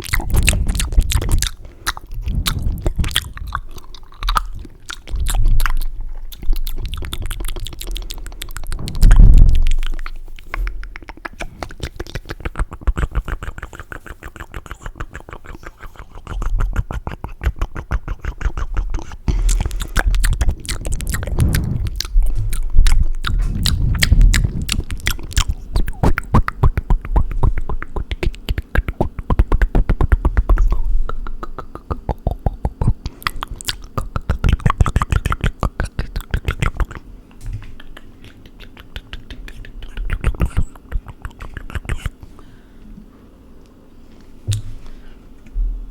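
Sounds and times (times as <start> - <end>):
tongue clicks and flutters: 0.0 - 37.0, 37.6 - 42.2
wet lip smacks and pops: 0.0 - 37.0, 37.6 - 42.2
low breathy thumps: 0.4 - 3.6, 8.0 - 10.8, 19.2 - 26.2.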